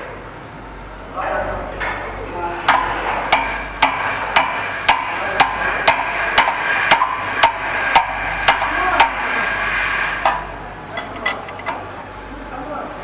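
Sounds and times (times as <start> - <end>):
hammer striking metal: 2.7 - 9.2, 11.0 - 11.8.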